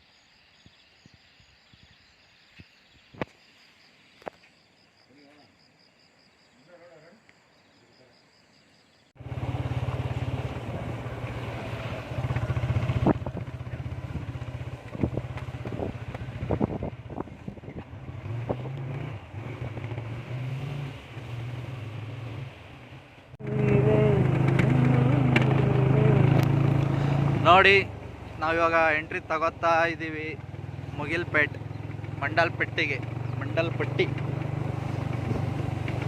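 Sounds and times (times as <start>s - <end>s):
scooter engine running: 9.2s - 20.0s, 23.4s - 36.0s.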